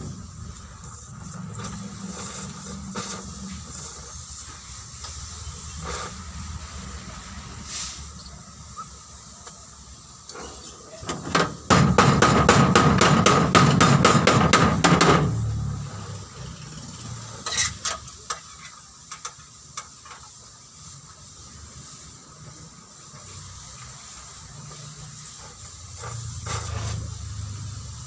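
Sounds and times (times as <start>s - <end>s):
sharp knocks: 11.3s - 15.4s
hammer striking metal: 11.4s - 15.4s.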